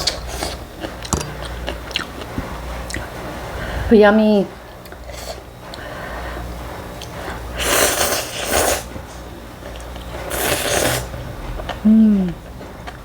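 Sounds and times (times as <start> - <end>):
slurping noodles: 7.0 - 9.0, 9.7 - 11.2.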